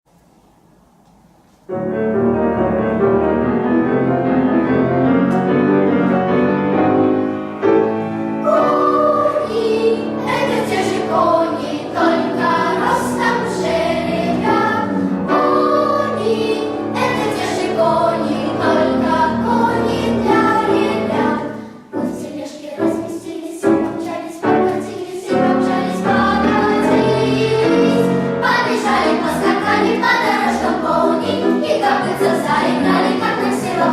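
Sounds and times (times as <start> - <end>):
piano accompaniment: 1.3 - 33.9
children's choir singing: 7.1 - 33.9.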